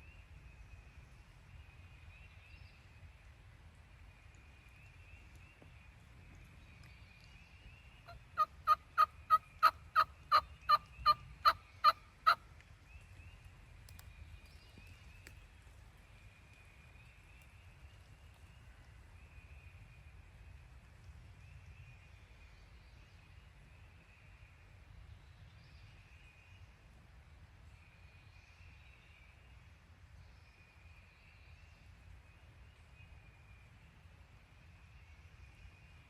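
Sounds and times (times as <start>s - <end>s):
turkey yelps: 8.4s - 12.4s.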